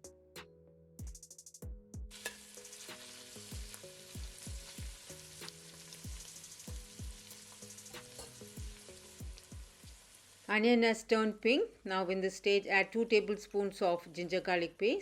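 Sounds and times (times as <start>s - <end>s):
background music with drum beat: 0.0s - 10.0s
onions sizzling in a pan: 2.1s - 11.0s.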